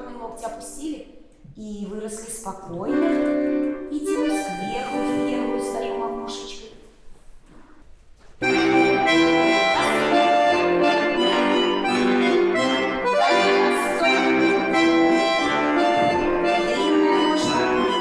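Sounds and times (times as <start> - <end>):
accordion playing folk tune: 2.9 - 6.2, 8.4 - 18.0.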